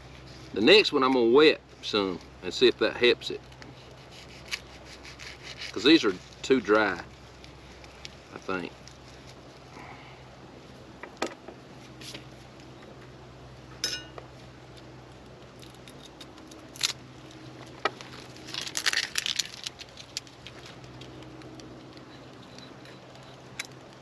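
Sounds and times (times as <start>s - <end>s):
crackly rustling: 3.3s - 9.9s, 14.2s - 24.0s.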